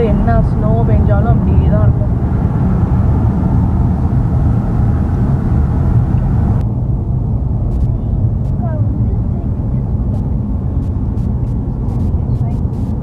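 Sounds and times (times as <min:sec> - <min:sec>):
road and engine rumble: 0:00.0 - 0:13.0.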